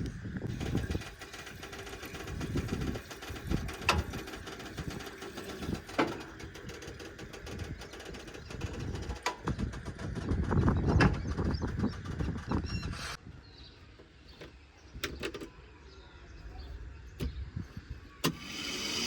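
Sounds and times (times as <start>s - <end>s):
tractor diesel engine rumbling: 0.0s - 15.7s.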